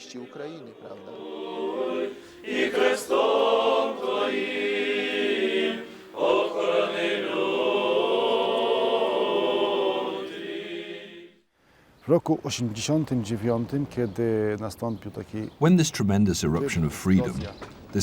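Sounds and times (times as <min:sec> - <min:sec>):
choir singing: 0:00.0 - 0:11.4.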